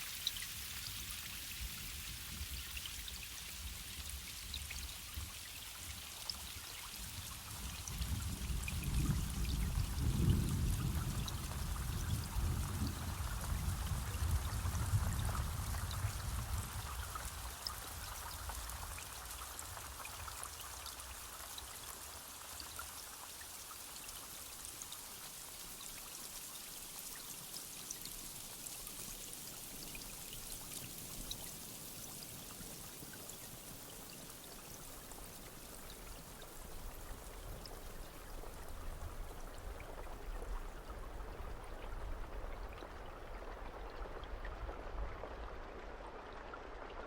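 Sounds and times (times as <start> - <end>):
small water drips: 0.0 - 47.0
steady rain: 0.0 - 47.0.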